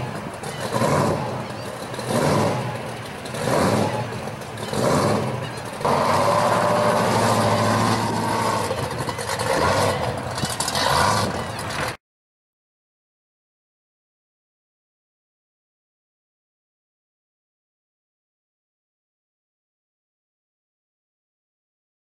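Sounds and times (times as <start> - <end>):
supercharged engine revving: 3.3 - 4.0, 4.6 - 11.9.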